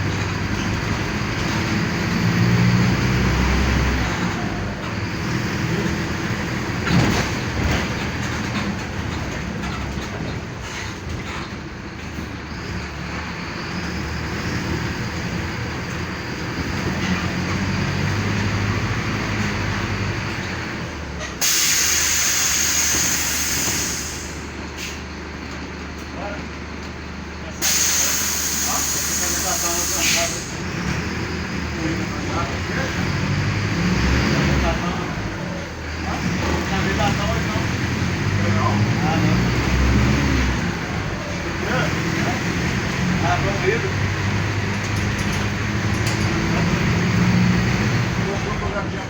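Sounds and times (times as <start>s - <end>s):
bus diesel engine running: 0.0s - 49.0s
compressed air hiss: 21.4s - 25.0s, 27.6s - 30.5s.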